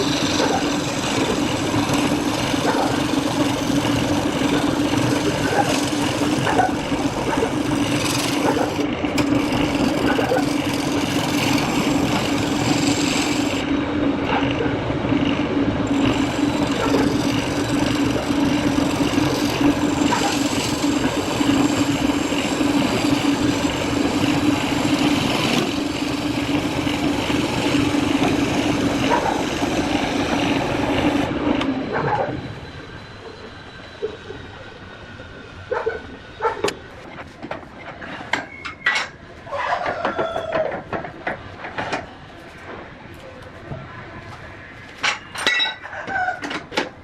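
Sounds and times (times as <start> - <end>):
wood lathe humming: 0.0 - 14.0, 15.6 - 31.6
tool scraping spinning wood: 0.0 - 14.7, 15.7 - 32.3.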